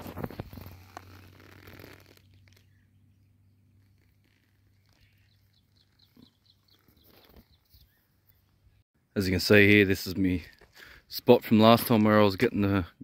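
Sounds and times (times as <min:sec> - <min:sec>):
faint high bird chirps: 0:02.2 - 0:08.8.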